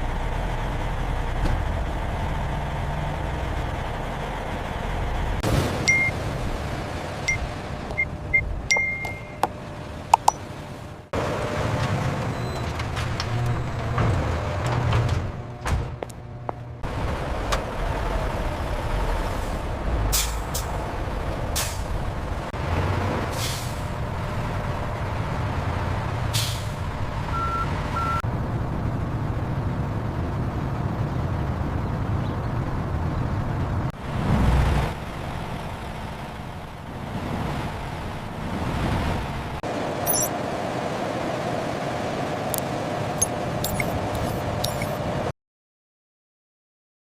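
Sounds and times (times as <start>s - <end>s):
short beeps: 5.9s - 6.1s, 8.3s - 9.5s, 40.1s - 40.3s, 43.2s - 45.0s.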